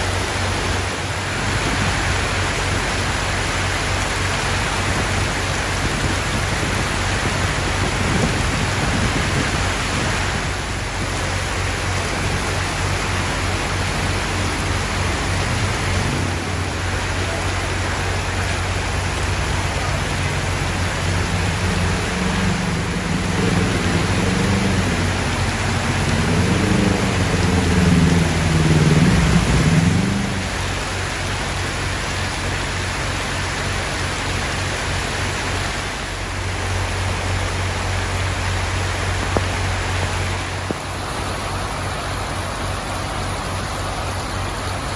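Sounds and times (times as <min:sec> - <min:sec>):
low wavering drone: 0:00.0 - 0:31.5
heavy rain pouring: 0:00.0 - 0:44.9.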